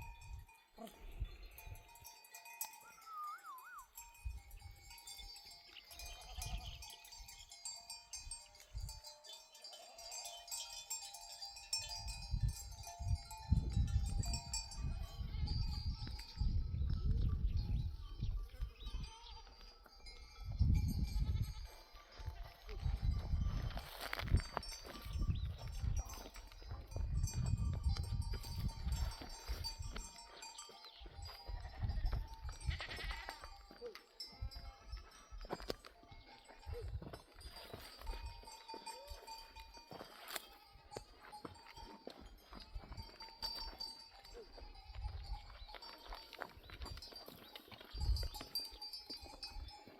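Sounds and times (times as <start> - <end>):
small bells tinkling: 0.0 - 49.9
sheep bleating: 32.7 - 33.5.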